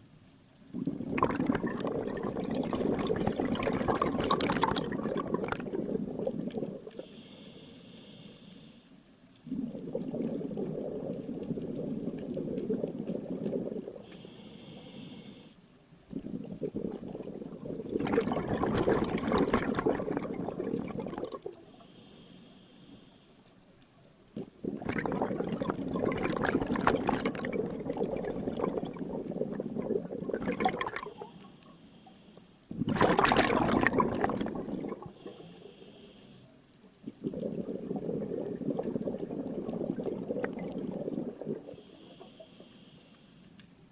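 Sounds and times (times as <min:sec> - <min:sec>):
exhaled bubbles rushing: 0:00.7 - 0:07.1, 0:09.4 - 0:14.1, 0:16.1 - 0:21.6, 0:24.4 - 0:31.2, 0:32.7 - 0:35.4, 0:37.0 - 0:41.8
regulator inhalation hiss: 0:07.0 - 0:09.0, 0:14.0 - 0:15.6, 0:21.7 - 0:23.4, 0:31.0 - 0:32.7, 0:35.1 - 0:36.6, 0:41.7 - 0:43.6.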